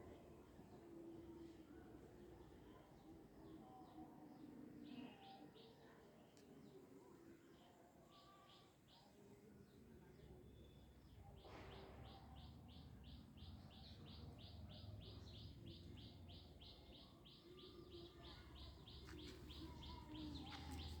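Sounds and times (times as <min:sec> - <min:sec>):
bird chirping: 0:12.1 - 0:21.0.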